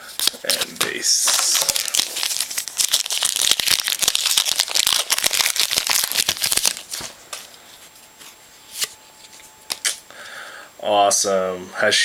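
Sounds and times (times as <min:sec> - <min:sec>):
wrapper tearing and crinkling: 0:00.0 - 0:07.1
cards clicking: 0:09.7 - 0:10.0.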